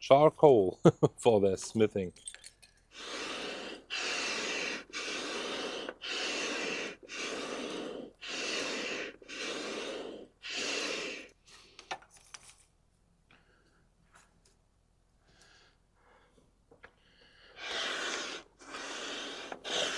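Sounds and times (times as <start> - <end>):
hand air pump whooshing: 2.9 - 11.4, 17.5 - 19.9.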